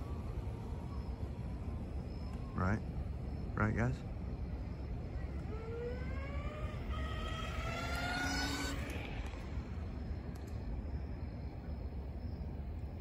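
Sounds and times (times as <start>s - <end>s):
low steady rumble: 0.0s - 13.0s
electric motors whining: 4.9s - 10.2s.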